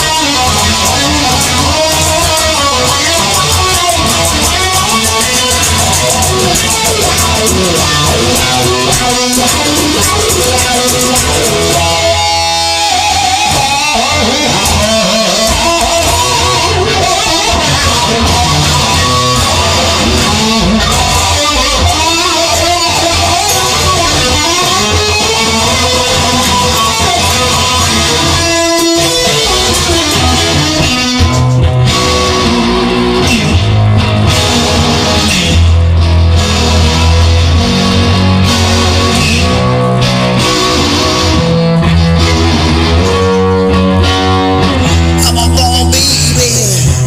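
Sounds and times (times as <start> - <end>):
instrumental rock music: 0.0 - 47.0.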